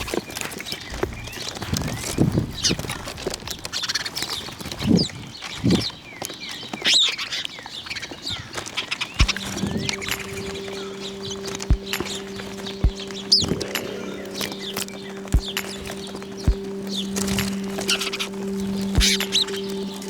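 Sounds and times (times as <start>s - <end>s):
small birds chirping: 0.0s - 20.0s
steady low hum: 9.2s - 20.0s.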